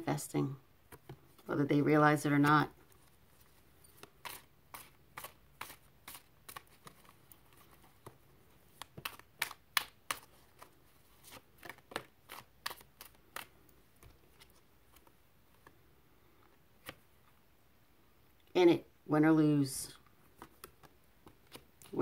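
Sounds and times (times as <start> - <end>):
cards being shuffled: 2.8 - 17.2, 20.3 - 22.0.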